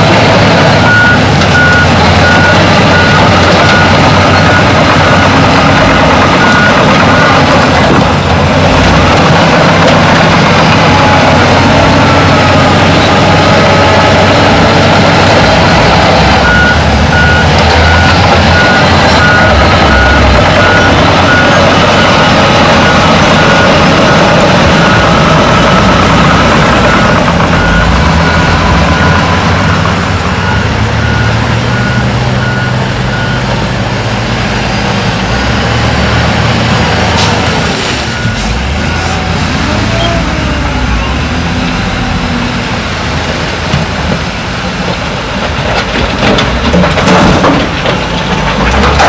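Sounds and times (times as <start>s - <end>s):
heavy diesel machinery running: 0.0s - 49.0s
reversing alarm beeping: 0.7s - 7.5s, 16.4s - 33.5s, 38.1s - 42.4s.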